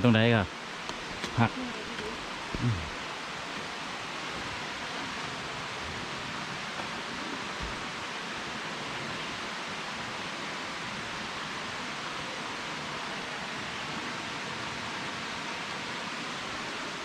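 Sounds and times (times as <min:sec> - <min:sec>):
waterfall rushing: 0:00.2 - 0:17.0.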